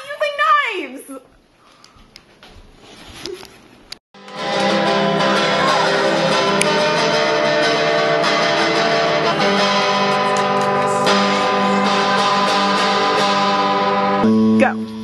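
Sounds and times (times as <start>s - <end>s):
strummed guitar chords: 4.2s - 15.0s.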